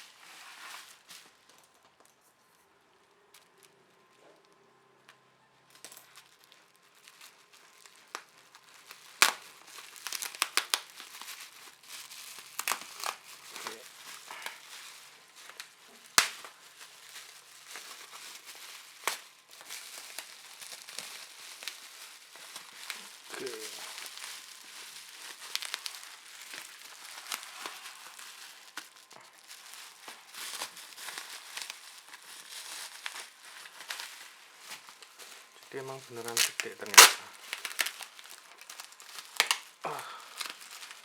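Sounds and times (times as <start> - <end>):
packaging crinkling: 0.0 - 2.2, 5.7 - 41.0.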